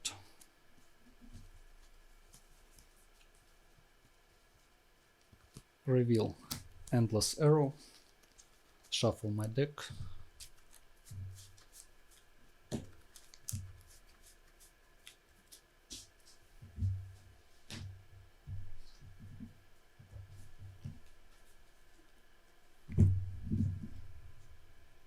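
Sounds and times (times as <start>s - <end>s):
playing cards being shuffled: 10.0s - 16.4s.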